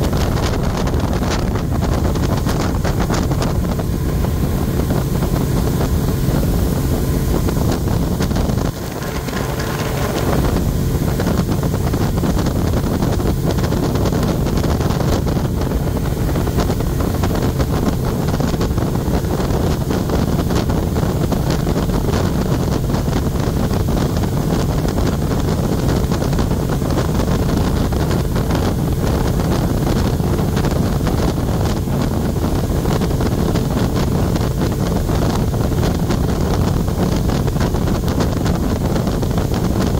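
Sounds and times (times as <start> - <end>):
boat engine running: 0.0 - 39.9
wind buffeting microphone: 0.0 - 39.9.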